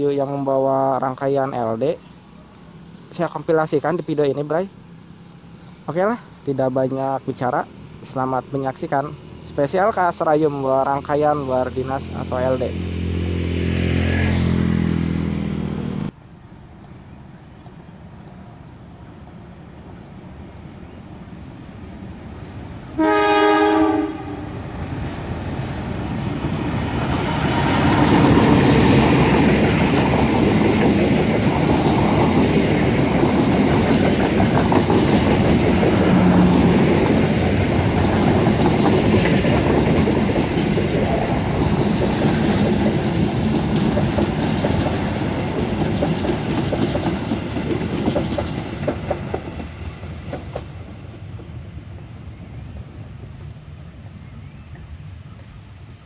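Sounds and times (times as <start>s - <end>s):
train coaches rumbling on rails: 0.0s - 56.0s
locomotive engine: 20.8s - 52.0s
locomotive horn: 23.0s - 24.5s.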